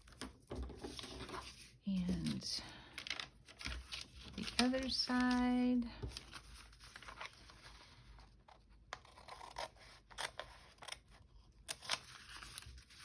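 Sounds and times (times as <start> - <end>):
scissors cutting paper bag: 8.9 - 12.8.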